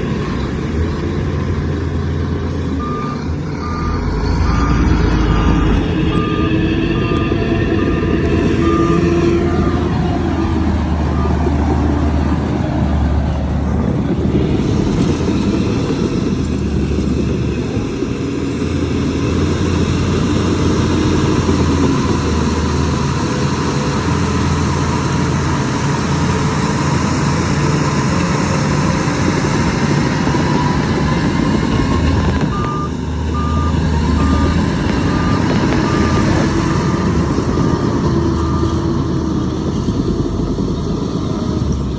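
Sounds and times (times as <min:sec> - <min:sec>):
diesel engine rumbling: 0:00.0 - 0:41.9
reversing alarm beeping: 0:02.8 - 0:10.4, 0:11.0 - 0:11.7, 0:30.3 - 0:39.0.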